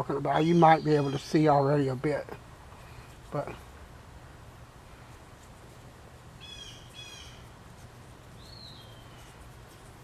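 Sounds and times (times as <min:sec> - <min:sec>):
low background hum: 0:00.0 - 0:10.0
bird calls: 0:06.4 - 0:07.5, 0:08.4 - 0:09.4.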